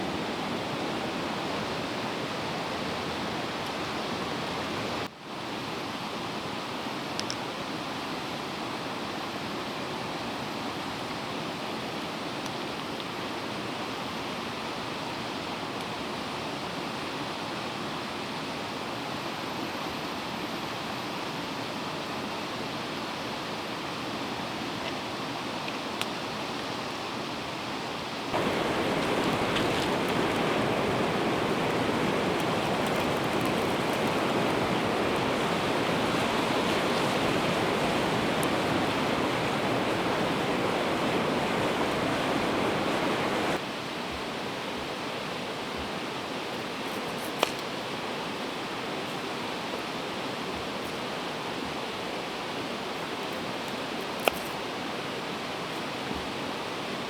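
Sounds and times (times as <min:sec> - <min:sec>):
river rushing: 0:28.3 - 0:46.8.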